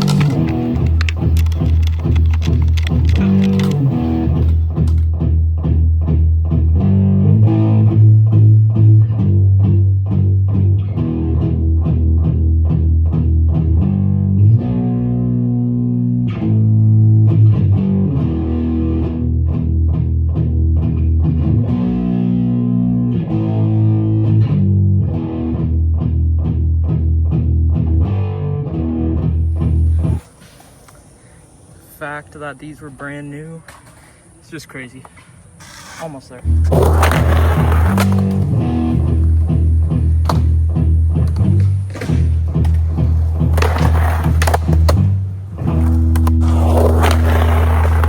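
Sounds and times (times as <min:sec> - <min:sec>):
guitar picked notes: 0:36.4 - 0:48.0.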